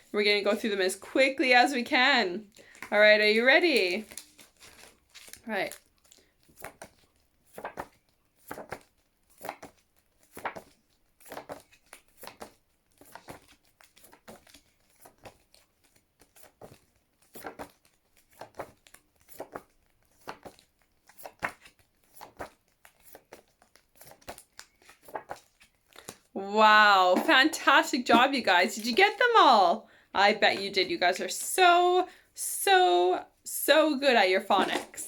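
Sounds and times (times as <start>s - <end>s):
paper flashcards flipping: 2.5s - 29.6s, 34.4s - 35.0s.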